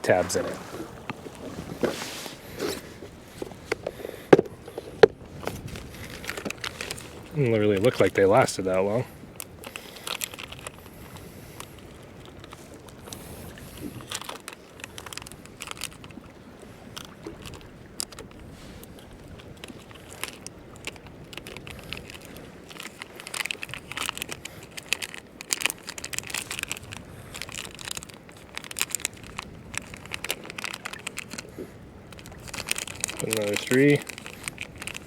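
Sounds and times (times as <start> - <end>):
plastic crinkling and crackling: 0.3 - 8.7, 9.6 - 11.2, 12.2 - 16.3, 19.6 - 35.0.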